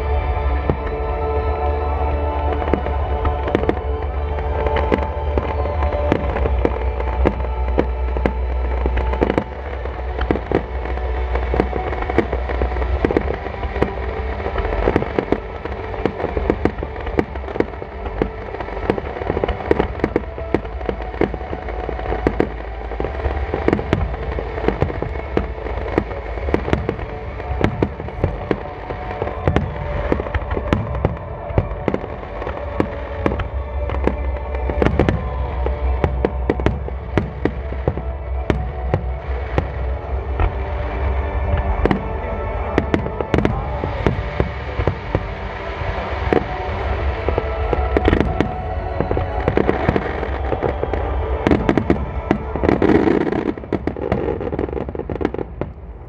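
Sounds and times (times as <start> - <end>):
fireworks bursting rapidly: 0.1 - 56.0.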